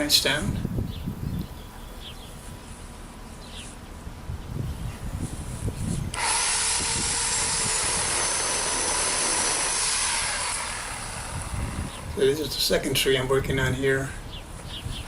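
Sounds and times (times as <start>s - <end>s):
electric pole saw buzzing: 6.1s - 12.2s.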